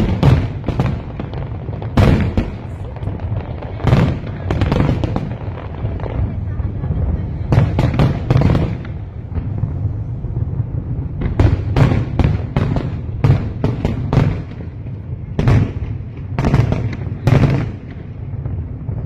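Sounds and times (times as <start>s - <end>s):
fireworks bangs and booms: 0.0s - 19.0s.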